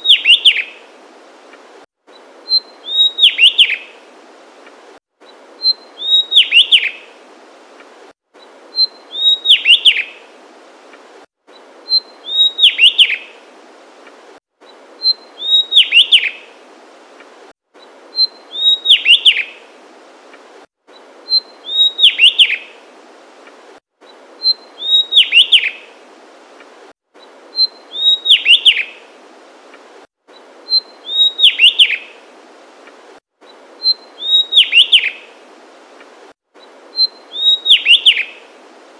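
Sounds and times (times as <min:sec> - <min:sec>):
bird singing whistled notes: 0:00.0 - 0:00.8, 0:02.1 - 0:04.0, 0:05.2 - 0:07.1, 0:08.4 - 0:10.2, 0:11.5 - 0:13.4, 0:15.0 - 0:16.5, 0:17.8 - 0:19.6, 0:20.9 - 0:22.8, 0:24.0 - 0:25.9, 0:27.2 - 0:29.0, 0:30.3 - 0:32.2, 0:33.5 - 0:35.4, 0:36.6 - 0:38.5
background hiss: 0:00.0 - 0:38.9.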